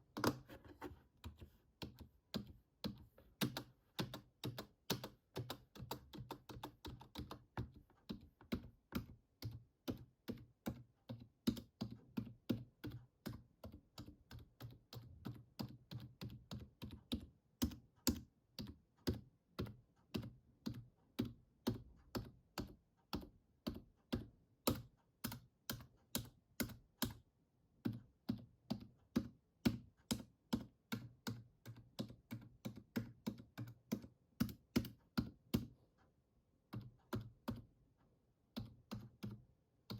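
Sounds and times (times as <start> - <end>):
keyboard keys clicking: 1.2 - 27.2.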